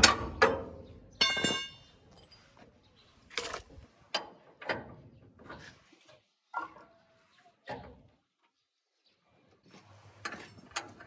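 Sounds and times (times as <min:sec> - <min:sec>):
sharp metal knocks: 0:00.0 - 0:01.8
ringing metallic clink: 0:01.2 - 0:01.9.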